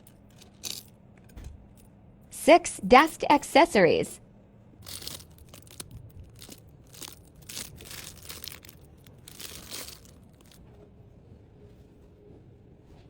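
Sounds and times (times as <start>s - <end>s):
plastic packaging crinkling: 4.8s - 10.6s.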